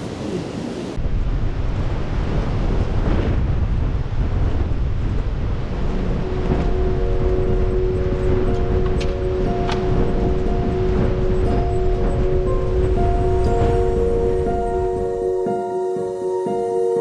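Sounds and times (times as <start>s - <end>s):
wind buffeting microphone: 0.0s - 15.5s
steady held tones: 6.2s - 17.0s.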